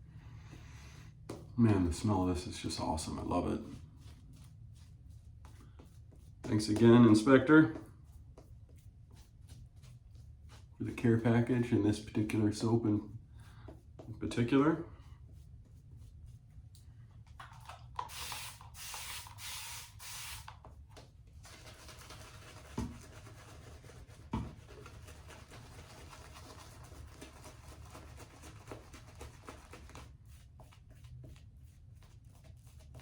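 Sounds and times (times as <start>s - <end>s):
shaving brush swishing on soap: 1.4s - 17.3s, 20.7s - 33.0s.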